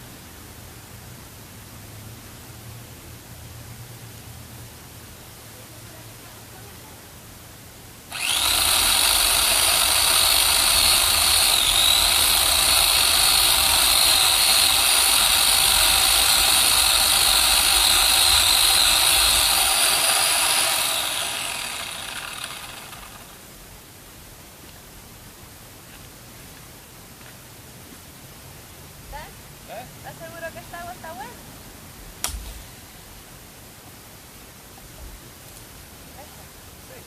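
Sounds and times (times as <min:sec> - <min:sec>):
electric chainsaw motor whining: 0:08.1 - 0:23.4.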